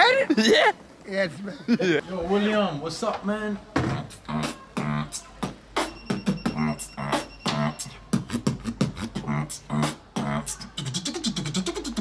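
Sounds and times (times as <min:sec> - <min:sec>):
beatboxing hip-hop beat: 0:03.8 - 0:12.0.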